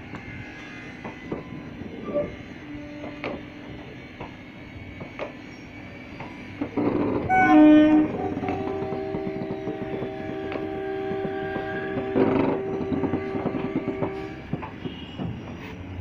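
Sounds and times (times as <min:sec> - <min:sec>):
train wheels clacking over joints: 0:00.0 - 0:16.0
train horn: 0:02.0 - 0:03.9, 0:07.2 - 0:15.5
steady horn-like tones: 0:06.8 - 0:15.5.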